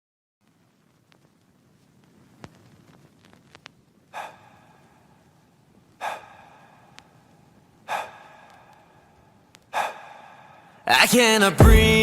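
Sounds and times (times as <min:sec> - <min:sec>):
sharp gasp-like breath sounds: 0:04.1 - 0:04.8, 0:06.0 - 0:07.0, 0:07.8 - 0:09.0, 0:09.7 - 0:10.8.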